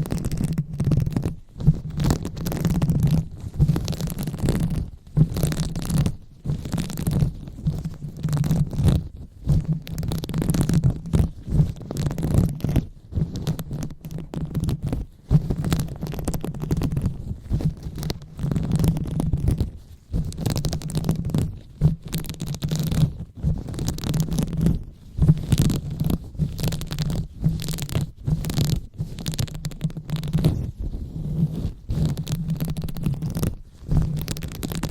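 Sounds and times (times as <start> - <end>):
fingers rubbing on microphone: 0.0 - 34.9.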